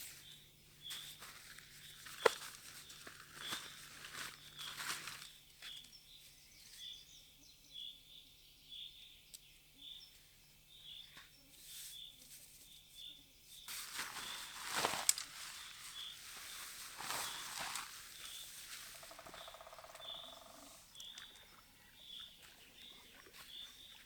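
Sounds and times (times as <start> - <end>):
rustling and crunching: 0.0 - 5.9, 13.6 - 20.0.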